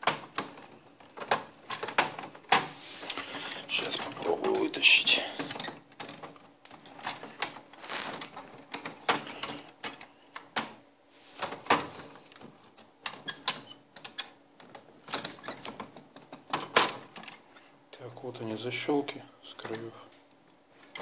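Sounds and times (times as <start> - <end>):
plastic clicks and rattles: 0.0 - 2.7, 5.4 - 10.8.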